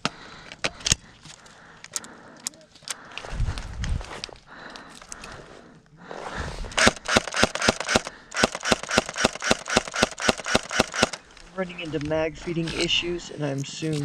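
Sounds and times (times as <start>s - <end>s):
airsoft gun rapid fire: 6.8s - 11.2s.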